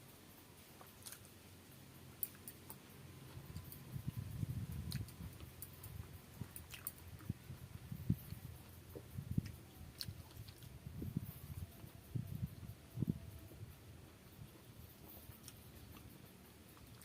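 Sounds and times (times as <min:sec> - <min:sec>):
person chewing food: 0:04.8 - 0:10.8, 0:14.1 - 0:17.0.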